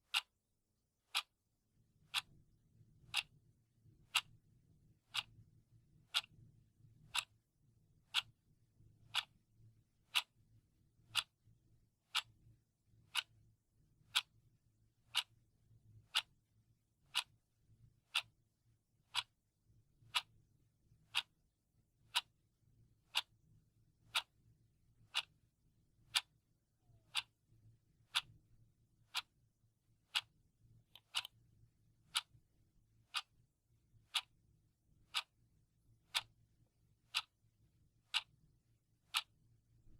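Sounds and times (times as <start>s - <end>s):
clock ticking: 0.0s - 0.3s, 1.1s - 1.3s, 2.1s - 2.3s, 3.0s - 3.4s, 4.1s - 4.3s, 5.0s - 5.4s, 6.1s - 6.3s, 7.1s - 7.4s, 8.1s - 8.3s, 9.1s - 9.3s, 10.1s - 10.3s, 11.0s - 11.4s, 12.0s - 12.4s, 13.1s - 13.3s, 14.0s - 14.3s, 15.0s - 15.3s, 16.0s - 16.4s, 17.1s - 17.4s, 18.1s - 18.4s, 19.0s - 19.3s, 20.0s - 20.3s, 21.1s - 21.3s, 22.1s - 22.3s, 23.1s - 23.4s, 24.1s - 24.4s, 25.0s - 25.4s, 26.1s - 27.4s, 28.1s - 28.4s, 29.1s - 29.3s, 30.0s - 30.3s, 30.9s - 31.4s, 32.0s - 32.4s, 33.1s - 33.4s, 34.0s - 34.3s, 35.1s - 35.4s, 36.1s - 36.4s, 37.1s - 37.4s, 38.0s - 38.4s, 39.0s - 39.9s.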